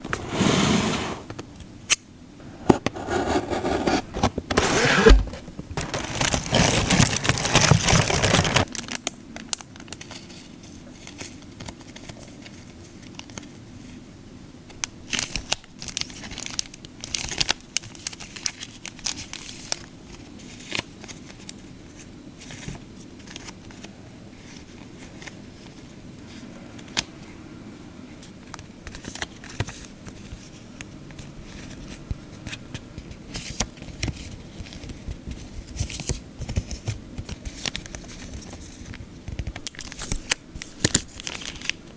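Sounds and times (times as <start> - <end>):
paper rustling: 2.9 - 8.8, 28.9 - 41.9
packaging tearing: 4.6 - 9.1, 39.6 - 41.8
plastic wrap crinkling: 5.0 - 10.3, 15.1 - 21.6, 33.4 - 41.9.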